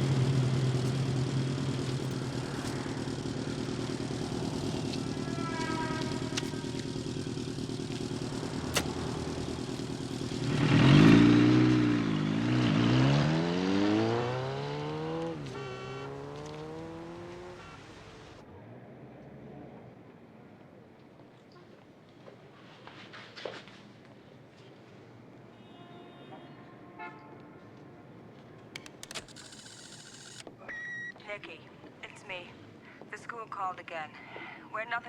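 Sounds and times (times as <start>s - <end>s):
motorcycle engine revving: 0.0s - 18.4s.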